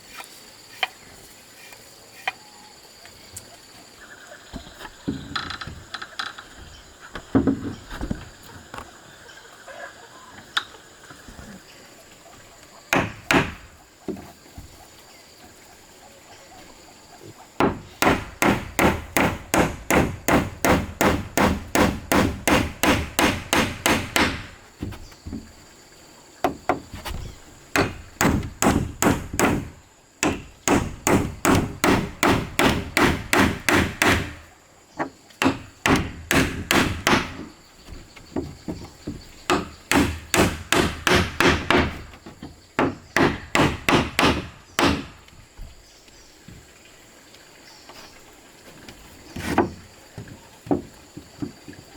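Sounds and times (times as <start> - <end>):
hammering on wood: 12.9 - 14.2, 17.6 - 25.5, 26.4 - 26.9, 27.7 - 45.3.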